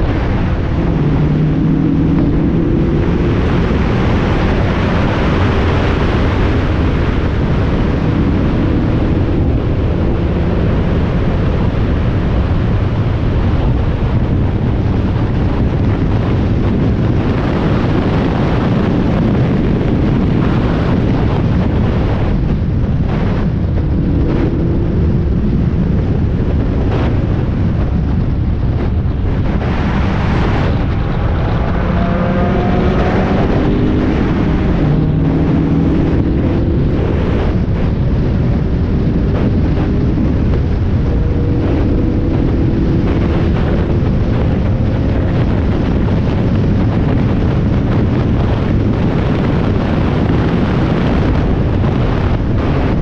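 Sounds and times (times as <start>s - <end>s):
race car engine running hard: 0.0s - 53.0s
wind noise on microphone: 0.0s - 53.0s.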